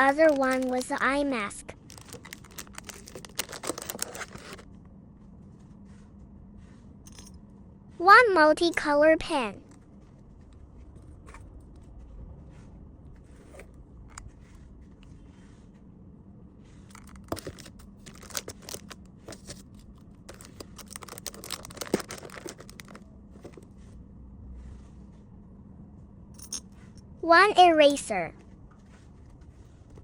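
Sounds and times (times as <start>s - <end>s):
packaging crinkling and rustling: 0.0s - 1.1s, 1.7s - 4.7s, 16.9s - 23.8s.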